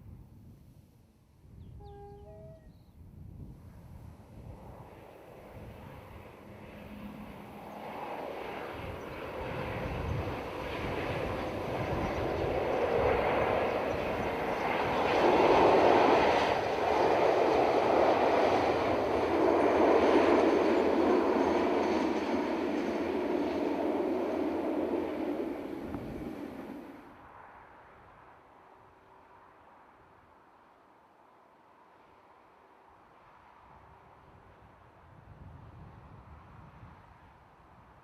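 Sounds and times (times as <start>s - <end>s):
diesel locomotive passing: 1.8s - 2.7s, 4.5s - 27.1s.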